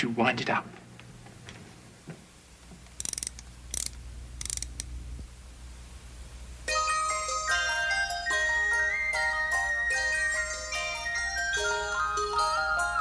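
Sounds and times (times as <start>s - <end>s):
wind-up key ratcheting: 3.0s - 4.9s
tinkling music-box tune: 6.7s - 13.0s.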